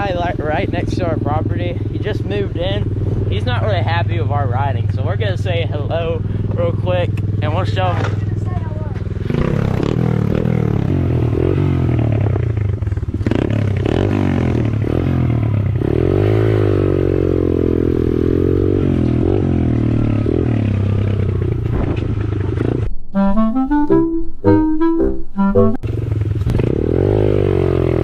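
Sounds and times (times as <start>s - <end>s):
dirt bike engines revving: 0.0s - 22.9s, 25.8s - 28.0s
short melodic tune: 22.9s - 25.9s.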